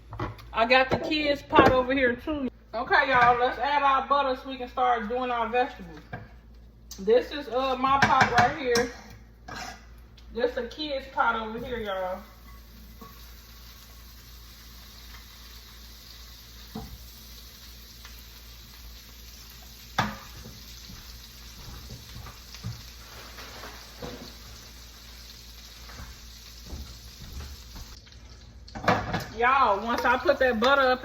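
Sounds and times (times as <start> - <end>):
butter sizzling in a pot: 11.1 - 31.0.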